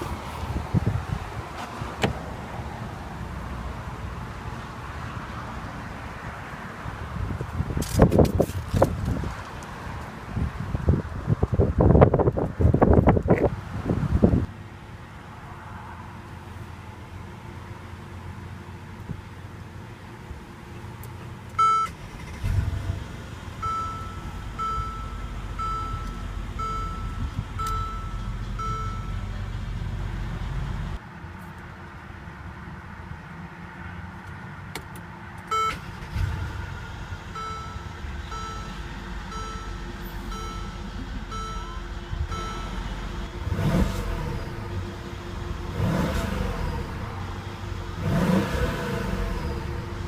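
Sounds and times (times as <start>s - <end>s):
car engine rising in pitch: 0.0s - 5.2s, 21.6s - 31.0s, 35.5s - 50.0s
low steady rumble: 0.0s - 5.2s, 16.2s - 31.0s, 35.5s - 50.0s
car warning chime: 21.6s - 22.2s, 23.6s - 29.4s, 35.5s - 46.1s.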